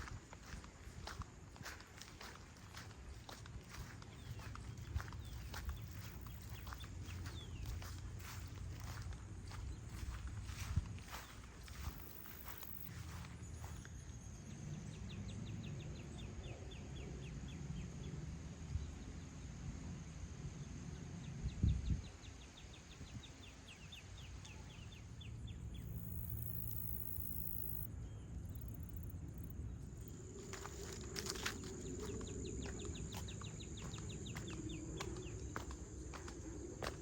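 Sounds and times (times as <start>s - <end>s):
high insect drone: 25.0s - 37.0s.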